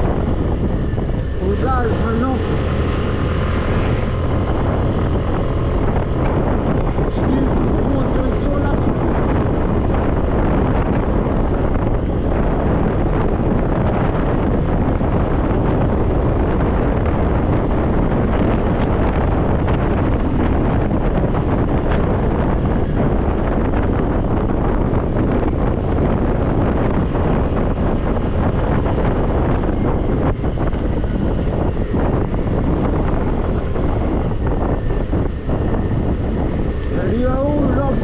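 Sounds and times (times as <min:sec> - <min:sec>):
scooter engine running: 0:00.0 - 0:38.0
wind buffeting microphone: 0:00.0 - 0:38.0.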